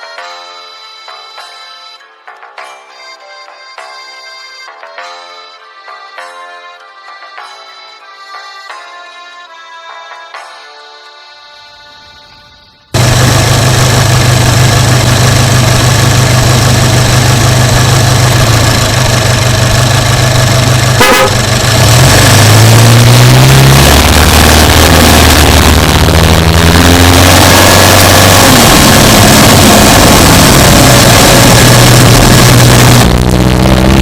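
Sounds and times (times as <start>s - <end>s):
car engine running: 13.0s - 34.0s.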